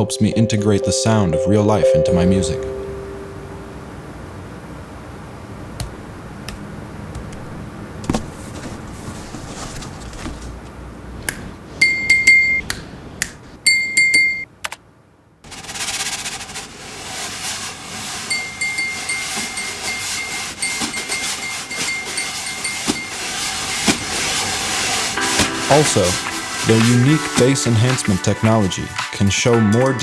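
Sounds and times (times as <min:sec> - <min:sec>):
faint ringing tone: 0:00.0 - 0:04.4, 0:11.8 - 0:12.6, 0:13.7 - 0:14.5, 0:18.3 - 0:26.8
steady hiss: 0:15.5 - 0:29.2.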